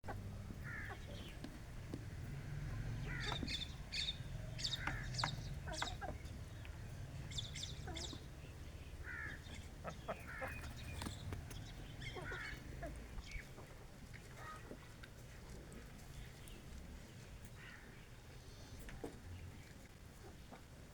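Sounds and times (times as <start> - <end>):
hens clucking: 0.0 - 14.8.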